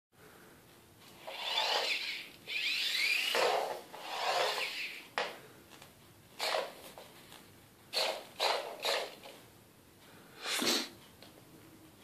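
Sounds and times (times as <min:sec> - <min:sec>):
electric motors whining: 0:01.2 - 0:05.0.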